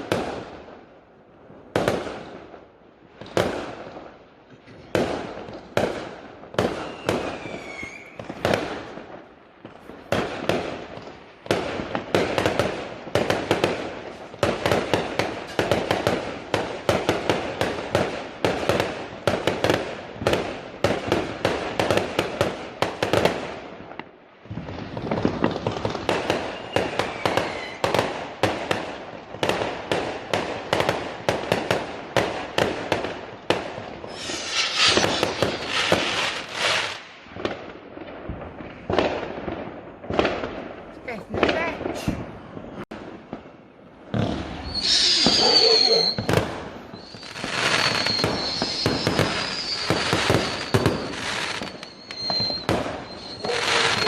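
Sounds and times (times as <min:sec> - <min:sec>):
fireworks crackling: 0:00.0 - 0:54.0
fireworks banging: 0:03.2 - 0:54.0
falling firework whistle: 0:06.6 - 0:08.4, 0:26.4 - 0:28.0, 0:34.0 - 0:37.0, 0:44.2 - 0:54.0.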